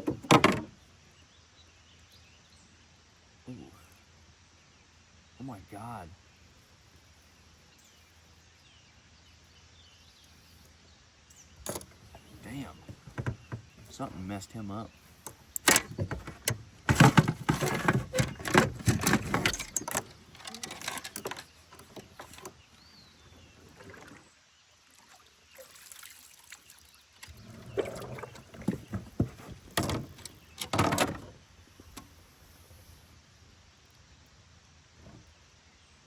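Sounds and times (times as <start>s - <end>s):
water splashing around a kayak: 11.7s - 31.4s.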